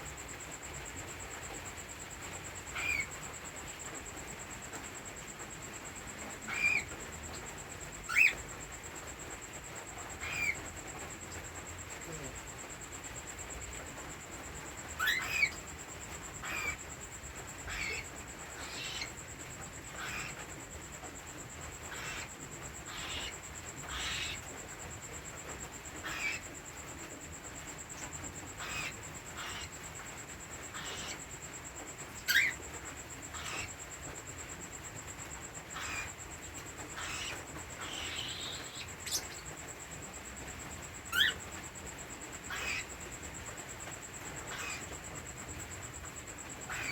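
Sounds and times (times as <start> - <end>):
cockatiel chirping calls: 2.7 - 3.1, 6.5 - 7.0, 8.0 - 8.4, 10.2 - 10.6, 14.9 - 15.6, 16.4 - 16.9, 17.6 - 19.2, 19.9 - 20.5, 21.8 - 24.5, 26.0 - 26.5, 28.0 - 29.7, 30.7 - 31.3, 32.2 - 32.6, 33.3 - 33.8, 35.6 - 36.2, 36.8 - 39.6, 41.1 - 41.6, 42.4 - 43.0, 44.2 - 45.0, 46.6 - 46.9
chicks hissing begging calls: 36.9 - 39.5, 42.4 - 43.0, 44.4 - 45.0.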